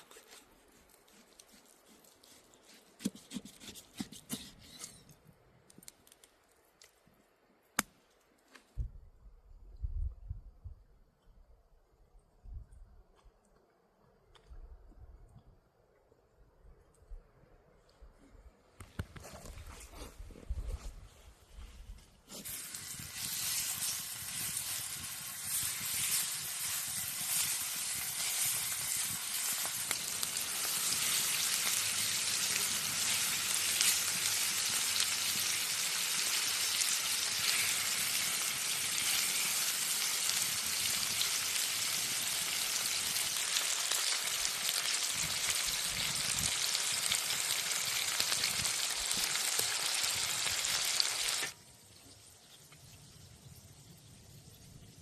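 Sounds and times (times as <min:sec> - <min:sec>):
food sizzling in a pan: 0:22.3 - 0:51.6.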